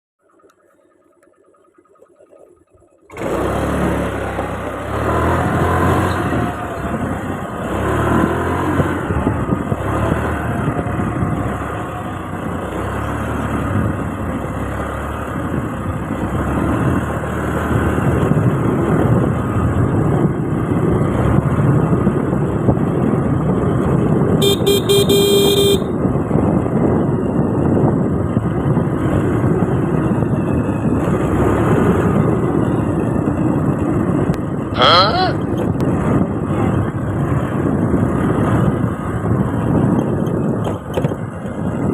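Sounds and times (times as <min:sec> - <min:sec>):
motorcycle engine: 0:00.2 - 0:41.9
road noise: 0:00.2 - 0:41.9
rushing wind: 0:03.1 - 0:41.9
vehicle horn honk: 0:24.4 - 0:26.0.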